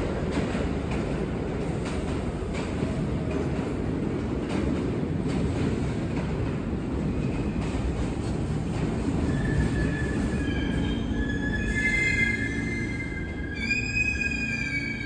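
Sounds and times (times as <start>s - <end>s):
subway train rumbling: 0.0s - 15.0s
wheel squeal: 9.2s - 15.0s.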